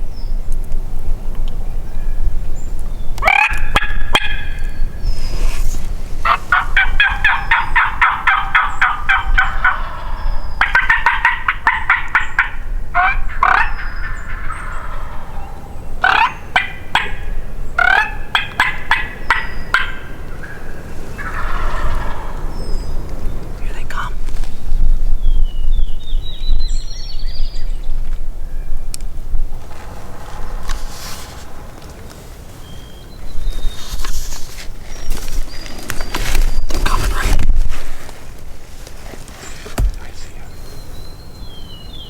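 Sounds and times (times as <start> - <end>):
turkeys gobbling: 3.2 - 4.6, 6.2 - 23.2.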